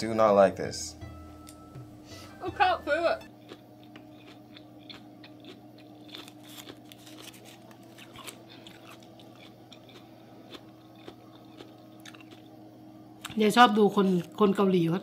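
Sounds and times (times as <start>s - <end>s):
wet chewing with mouth closed: 3.4s - 12.5s.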